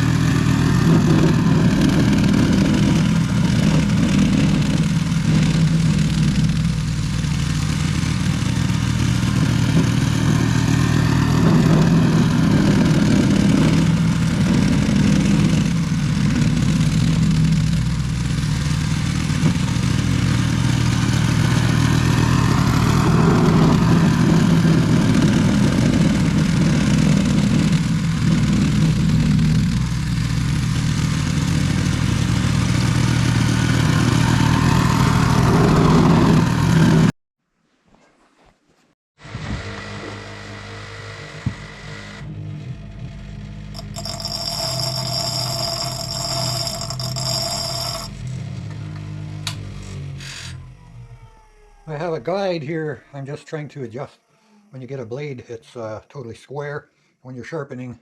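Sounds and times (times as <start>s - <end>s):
snowblower engine running: 0.0s - 37.1s, 39.2s - 50.6s.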